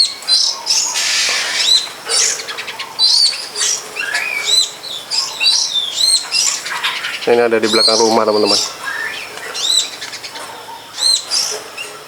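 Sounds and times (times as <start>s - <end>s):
bird singing high chirps: 0.8s - 10.2s
harsh raspy bird note: 1.0s - 1.9s.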